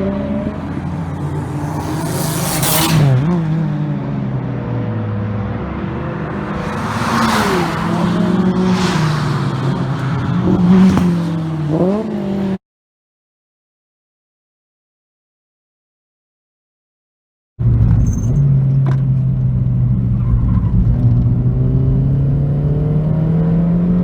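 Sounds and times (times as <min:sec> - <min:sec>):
car engine revving high: 0:05.0 - 0:12.6
rushing noise: 0:06.0 - 0:11.4.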